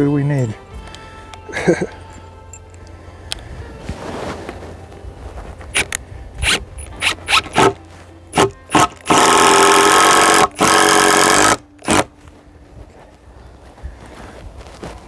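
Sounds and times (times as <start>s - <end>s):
cordless drill motor whine: 8.4s - 12.1s.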